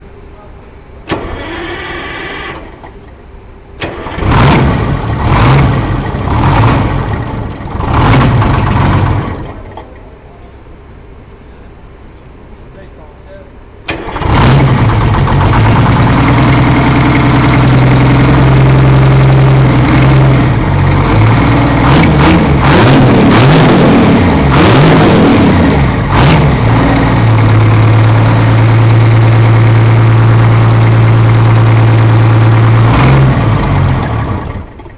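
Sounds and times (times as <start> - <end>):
diesel engine revving and idling: 1.1 - 3.2, 3.8 - 10.0, 13.8 - 34.9.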